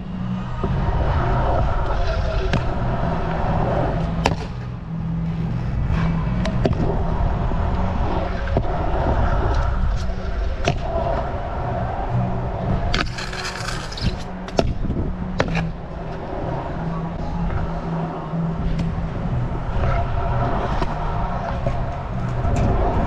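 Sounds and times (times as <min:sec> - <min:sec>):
scooter wheels rolling on concrete: 0:12.9 - 0:14.8.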